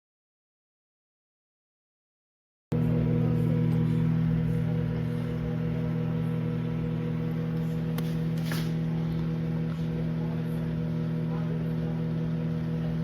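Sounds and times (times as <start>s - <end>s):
microwave oven humming: 2.7s - 13.0s.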